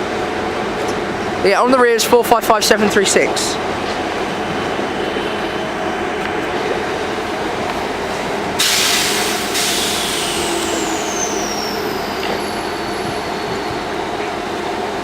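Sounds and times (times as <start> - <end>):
electric train humming: 2.5 - 15.0
high whine falling in pitch: 3.2 - 8.1, 9.0 - 15.0
air brakes hissing: 8.1 - 14.2.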